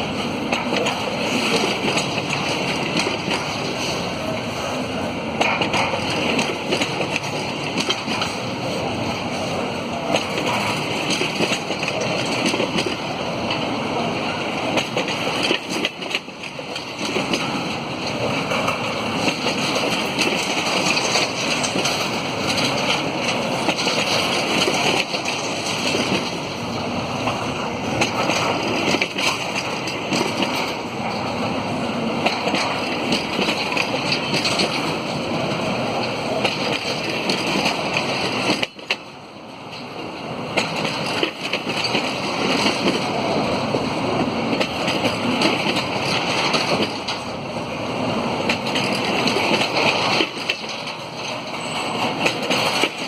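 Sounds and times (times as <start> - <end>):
clicks and rattles of train cars: 0.0 - 53.0
freight train wheels rumbling on rails: 0.0 - 53.0.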